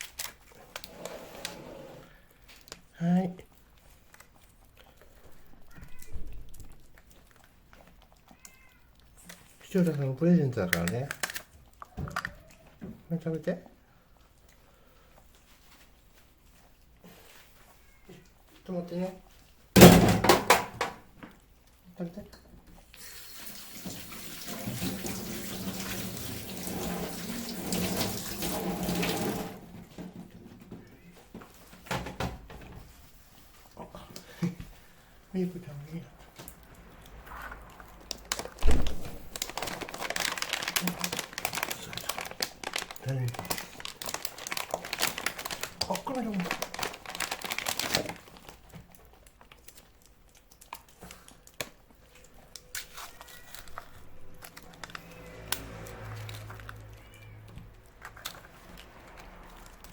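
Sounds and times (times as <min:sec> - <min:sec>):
paper packaging crinkling: 0:00.0 - 0:01.0, 0:09.6 - 0:11.6, 0:38.1 - 0:59.9
cats licking and eating: 0:00.0 - 0:20.0, 0:21.0 - 0:59.9
kittens lapping and smacking: 0:02.0 - 0:19.8, 0:21.0 - 0:28.1, 0:29.8 - 0:59.9.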